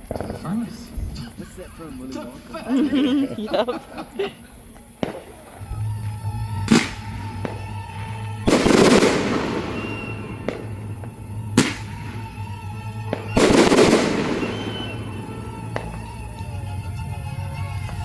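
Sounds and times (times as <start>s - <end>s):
fireworks booming and crackling: 0.0s - 2.7s, 3.3s - 18.0s
music: 3.8s - 18.0s
sharp firework bang: 6.6s - 16.7s.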